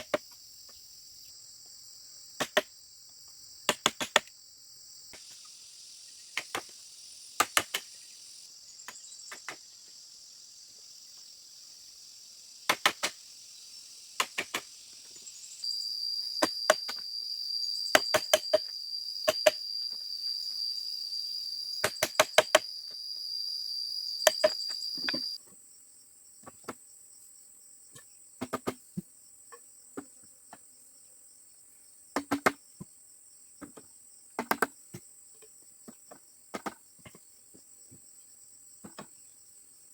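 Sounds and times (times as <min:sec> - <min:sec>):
insects droning: 0:00.0 - 0:39.9
sharp knocks on bamboo: 0:02.4 - 0:02.7, 0:03.7 - 0:04.3, 0:07.4 - 0:07.9, 0:12.7 - 0:13.2, 0:14.2 - 0:14.7, 0:18.0 - 0:18.6, 0:19.3 - 0:19.6, 0:21.8 - 0:22.7, 0:28.4 - 0:29.1, 0:32.2 - 0:32.6, 0:34.4 - 0:35.0, 0:35.9 - 0:37.2.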